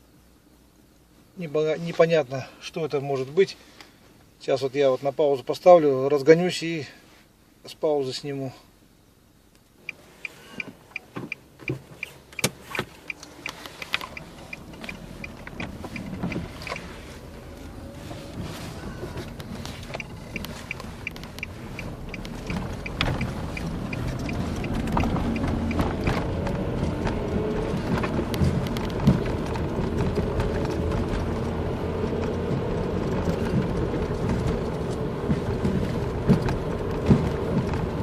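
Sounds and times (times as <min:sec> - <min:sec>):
car engine accelerating: 0:11.6 - 0:38.0
light even ticks: 0:19.3 - 0:25.9.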